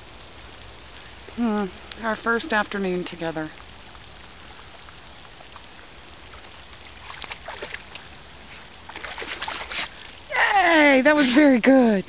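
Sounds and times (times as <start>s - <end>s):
running water rushing: 0.0s - 12.0s
dog splashing in water: 6.3s - 10.3s.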